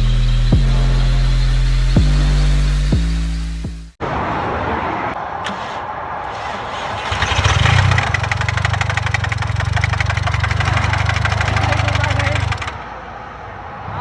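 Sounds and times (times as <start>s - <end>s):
car engine starting: 5.2s - 12.8s
engine knocking: 7.0s - 12.8s.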